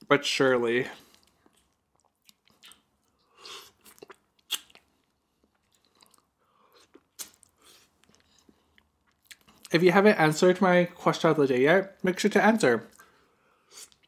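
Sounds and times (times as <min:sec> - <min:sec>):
soft chewing: 0:00.8 - 0:09.8, 0:12.8 - 0:14.0.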